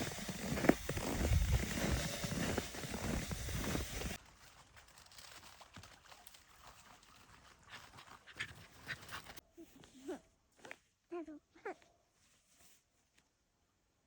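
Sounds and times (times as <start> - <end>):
footsteps crunching in snow: 0.0 - 4.2.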